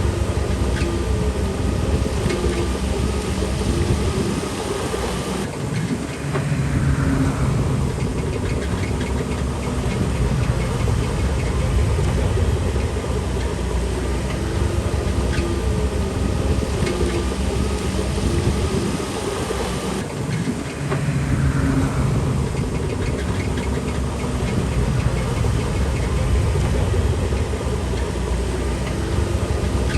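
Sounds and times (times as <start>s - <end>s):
bulldozer diesel engine running: 0.0s - 29.9s.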